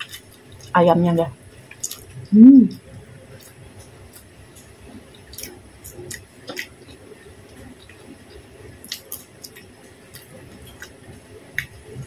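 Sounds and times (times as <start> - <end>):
chewing soft food: 0.0 - 0.8, 1.5 - 12.0.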